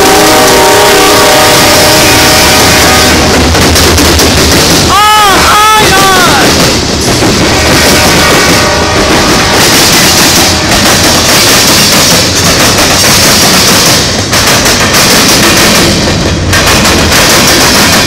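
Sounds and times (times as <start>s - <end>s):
freight train wheels rumbling: 0.0s - 18.0s
wheels banging over track crossing: 6.4s - 18.0s.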